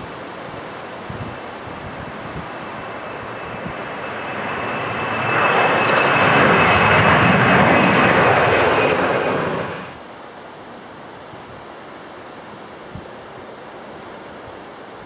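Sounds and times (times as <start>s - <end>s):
airliner engines passing close: 0.0s - 10.0s
high-pitched engine whine: 1.3s - 10.0s.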